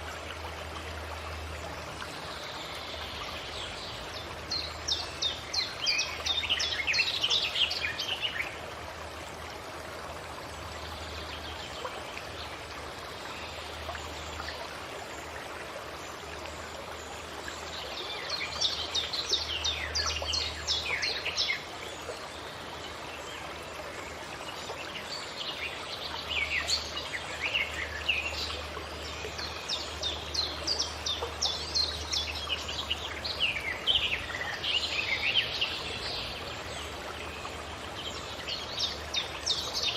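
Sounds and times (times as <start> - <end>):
songbirds chirping and trilling: 17.0 - 39.9.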